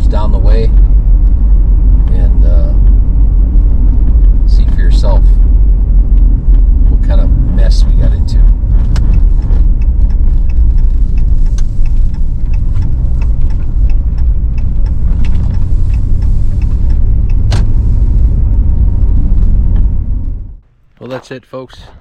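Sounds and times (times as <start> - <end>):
road and engine rumble: 0.0 - 22.0
small clicks and ticks: 7.6 - 19.9.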